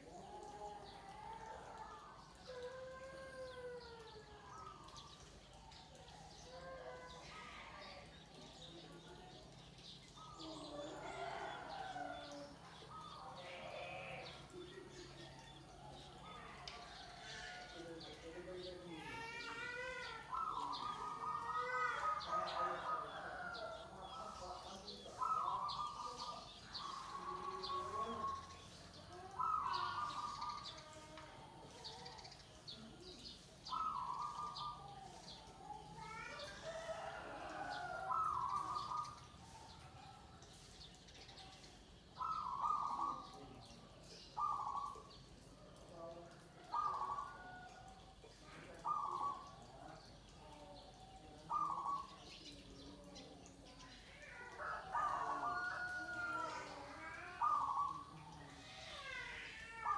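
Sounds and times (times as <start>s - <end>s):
small birds chirping: 0.0s - 59.9s
doves cooing: 10.1s - 18.5s, 20.2s - 40.4s, 41.5s - 52.7s, 54.1s - 59.9s
dove cooing: 29.3s - 30.7s, 35.7s - 39.3s, 42.2s - 43.4s, 46.6s - 47.8s, 54.6s - 58.4s.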